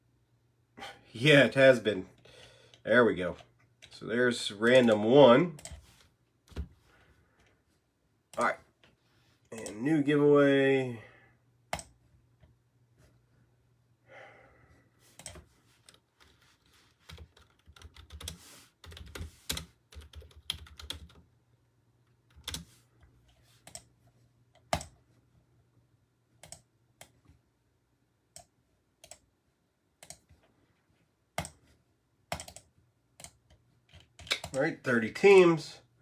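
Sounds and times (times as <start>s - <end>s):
computer keyboard typing: 5.6s - 5.8s, 11.7s - 12.0s, 15.2s - 21.2s, 22.3s - 22.7s, 23.6s - 23.9s, 24.6s - 25.0s, 28.4s - 29.2s, 32.3s - 34.6s.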